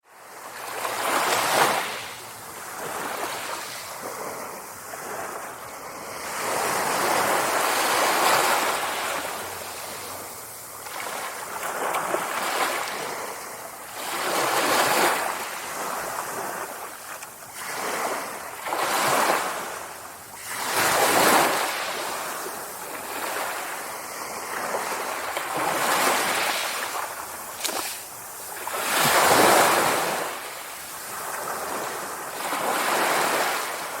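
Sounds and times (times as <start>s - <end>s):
sea waves breaking: 0.3s - 34.0s.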